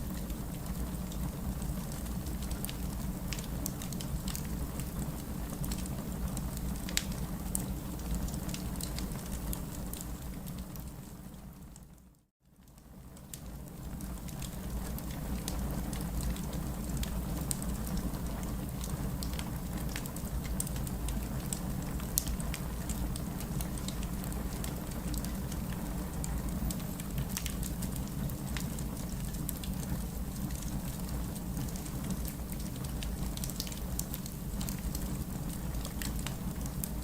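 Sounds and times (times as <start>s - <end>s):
rain: 0.0s - 37.0s
fireplace crackling: 22.1s - 37.0s.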